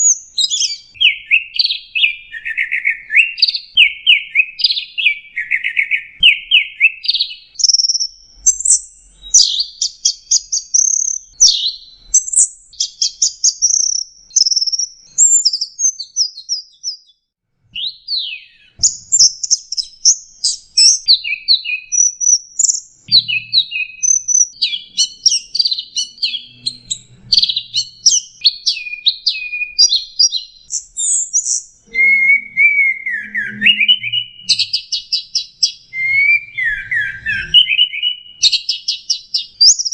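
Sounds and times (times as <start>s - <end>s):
shrike singing: 21.0s - 26.8s, 27.5s - 38.2s.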